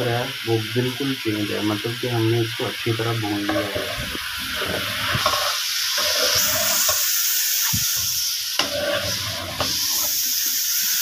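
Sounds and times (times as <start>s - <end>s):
vegetables sizzling in hot oil: 0.0s - 11.0s
spoon scraping against pot: 3.5s - 7.1s, 8.6s - 10.2s.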